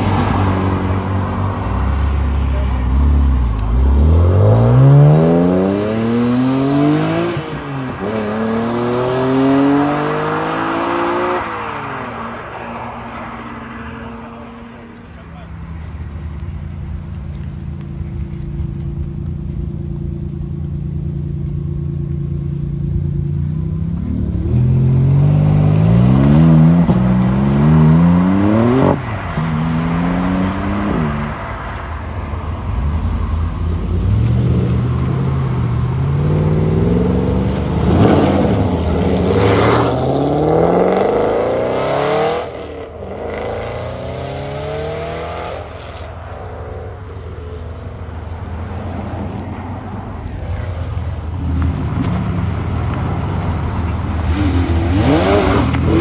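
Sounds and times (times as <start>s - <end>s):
car accelerating past: 0.0s - 15.2s, 23.4s - 56.0s
sports car engine revving: 51.1s - 56.0s.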